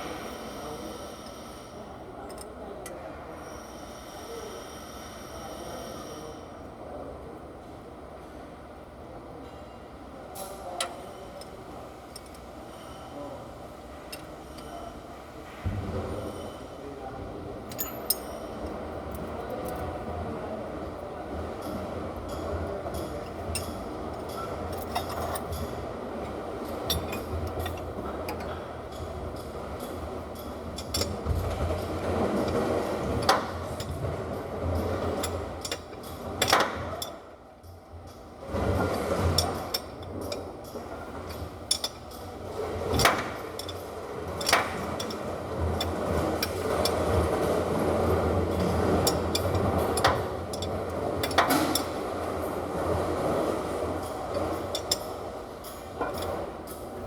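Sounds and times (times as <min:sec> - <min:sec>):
metal tools clinking on engine parts: 0:23.0 - 0:25.8, 0:26.6 - 0:29.1.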